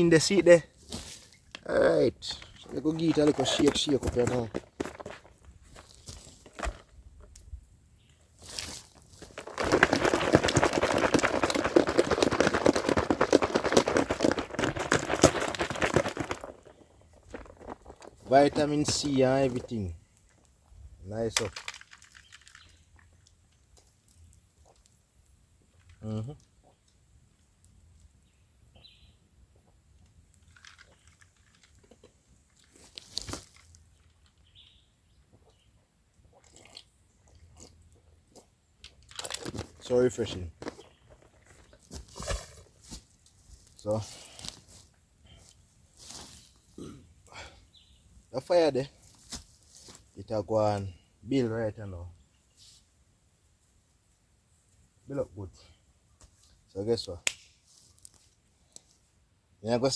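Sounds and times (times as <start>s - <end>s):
ice rattling in shaken container: 2.6s - 5.2s, 9.2s - 19.8s, 21.3s - 22.8s, 30.4s - 31.9s, 39.1s - 41.6s
person sipping and swallowing: 36.2s - 38.5s, 46.8s - 47.5s.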